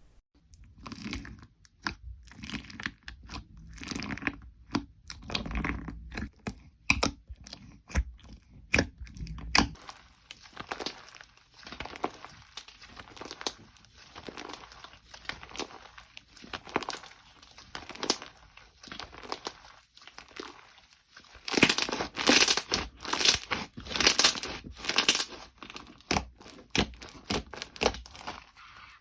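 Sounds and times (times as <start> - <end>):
slime squeezed by hand: 9.5 - 29.0.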